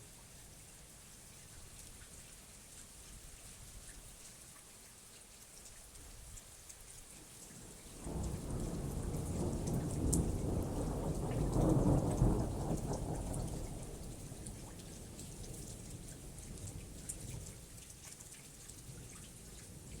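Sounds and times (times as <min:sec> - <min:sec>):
steady rain: 0:00.0 - 0:20.0
thunder rumbling: 0:08.1 - 0:13.9.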